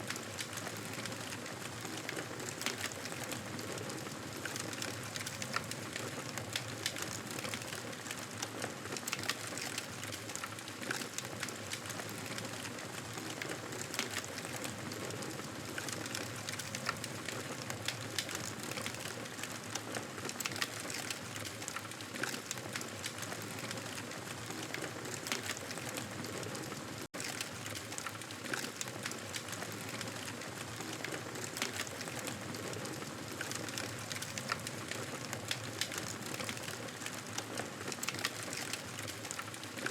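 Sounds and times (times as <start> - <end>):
campfire crackling: 8.9 - 39.9.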